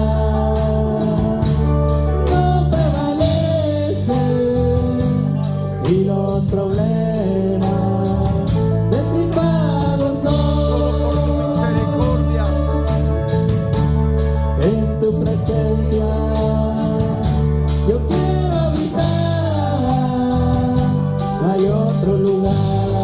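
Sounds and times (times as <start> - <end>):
people singing: 0.0 - 13.0, 14.6 - 23.0
held instrumental chords: 0.0 - 23.0
high-pitched percussion beat: 6.7 - 23.0.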